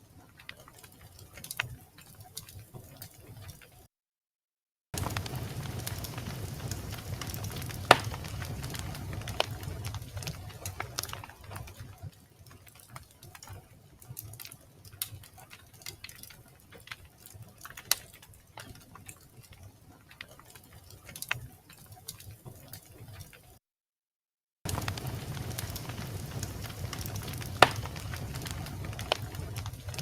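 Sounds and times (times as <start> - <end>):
wood fire crackling and popping: 0.0 - 3.9, 5.0 - 23.6, 24.7 - 30.0
faint low rumble: 24.7 - 30.0.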